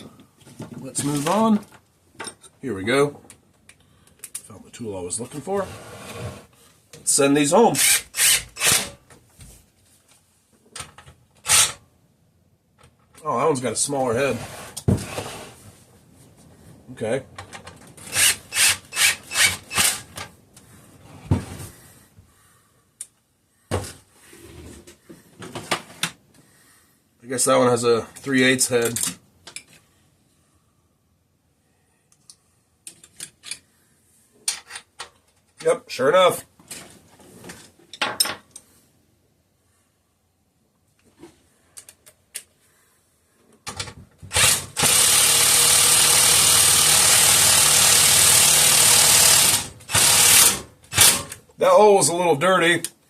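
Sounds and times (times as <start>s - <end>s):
impact driver driving screw: 7.8s - 9.0s, 11.5s - 11.8s, 18.1s - 20.1s, 44.3s - 51.4s.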